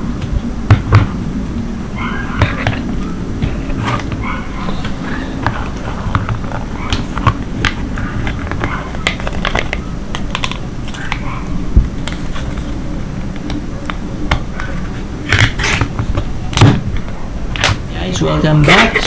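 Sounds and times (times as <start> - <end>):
plastic packaging crinkling and clicking: 2.4 - 17.8.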